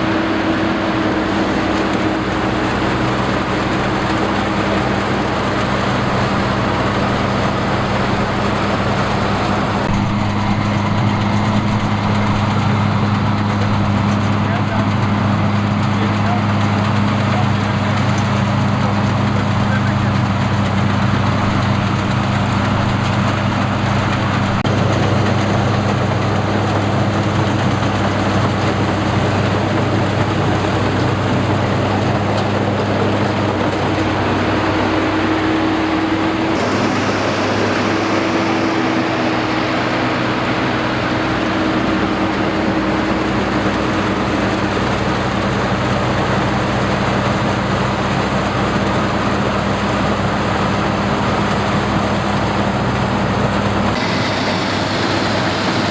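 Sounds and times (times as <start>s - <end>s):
combine harvester engine droning: 0.0s - 55.9s.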